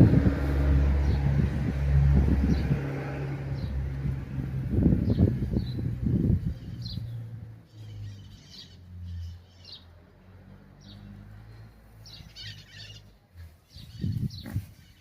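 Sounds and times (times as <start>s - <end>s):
loud low noise: 0.0s - 6.6s
small birds chirping: 1.0s - 15.0s.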